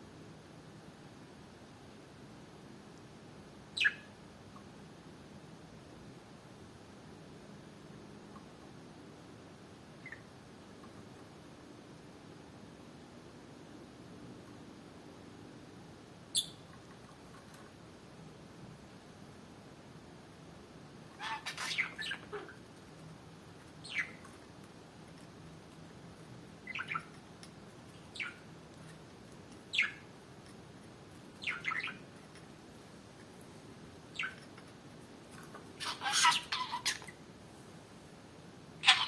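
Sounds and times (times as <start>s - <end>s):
budgerigar chirping: 3.8s - 4.0s, 21.2s - 22.6s, 23.8s - 24.2s, 26.7s - 27.1s, 28.1s - 28.4s, 29.7s - 30.0s, 31.4s - 32.0s.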